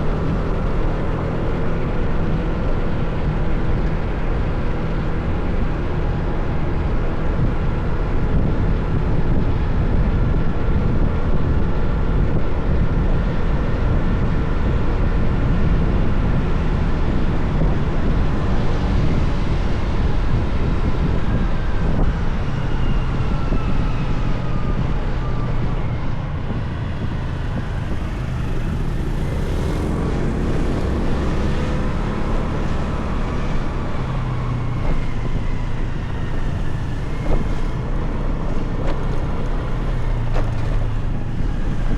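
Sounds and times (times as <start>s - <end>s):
motorcycle engine rumbling: 25.4s - 41.9s.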